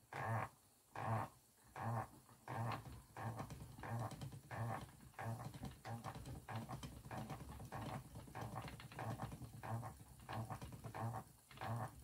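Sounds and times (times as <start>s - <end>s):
spinning wheel treadle rhythm: 2.8s - 11.2s.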